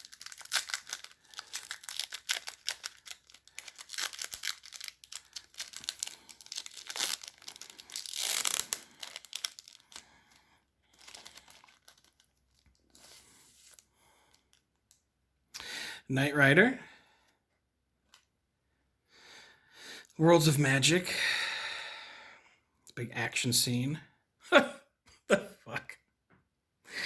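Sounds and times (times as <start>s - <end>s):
wrapper tearing and crinkling: 0.0s - 14.9s.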